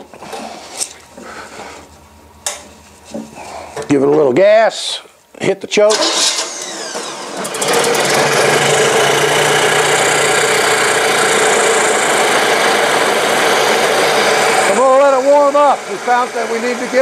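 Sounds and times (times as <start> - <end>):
car engine starting and running: 5.9 - 17.0.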